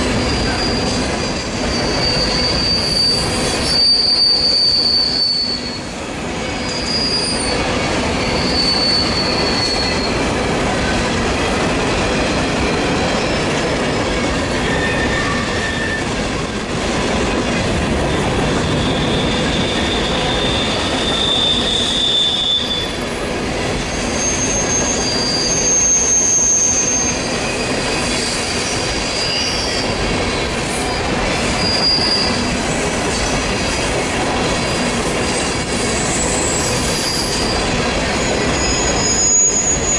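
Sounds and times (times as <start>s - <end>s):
train wheels rumbling on rail: 0.0s - 39.9s
high-pitched wheel squeals: 0.2s - 5.9s, 6.5s - 10.2s, 12.4s - 16.1s, 18.1s - 23.1s, 23.8s - 30.0s, 30.7s - 32.5s, 35.9s - 39.9s.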